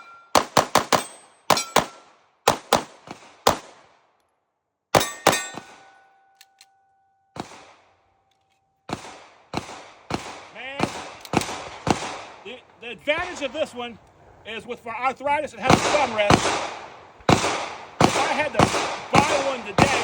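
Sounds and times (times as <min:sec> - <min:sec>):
pistol shots: 0:00.0 - 0:04.0, 0:04.9 - 0:06.2, 0:07.3 - 0:08.0, 0:08.8 - 0:14.0, 0:15.5 - 0:20.0
metallic ringing: 0:05.0 - 0:07.3.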